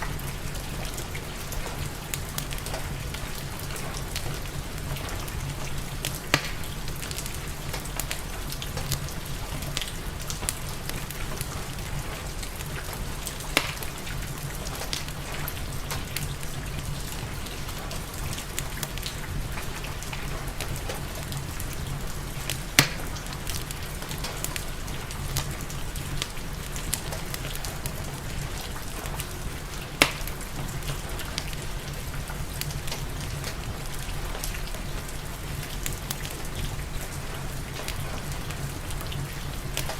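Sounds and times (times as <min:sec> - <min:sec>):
fireplace crackling: 0:00.0 - 0:39.9
steady rain: 0:00.0 - 0:39.9
sharp pops: 0:30.0 - 0:30.3.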